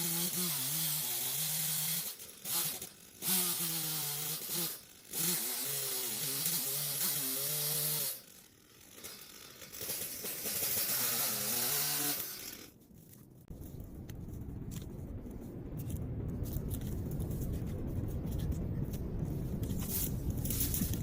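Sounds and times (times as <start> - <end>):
chainsaw running: 0.0 - 12.8
low rumble: 12.8 - 21.0.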